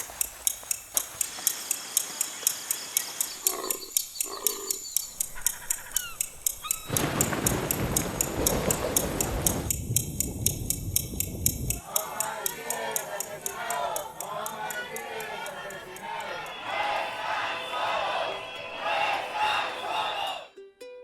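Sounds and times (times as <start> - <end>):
high repeating chirping: 0.5 - 8.0, 12.2 - 20.3
short animal calls: 3.3 - 7.2
brief bird whistles: 4.8 - 7.0.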